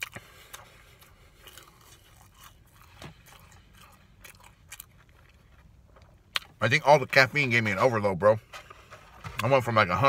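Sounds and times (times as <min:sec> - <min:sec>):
person chewing fries: 0:00.0 - 0:06.9.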